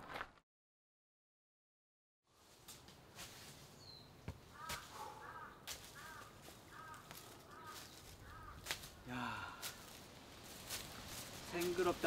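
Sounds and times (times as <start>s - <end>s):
bird calling: 3.8s - 9.1s.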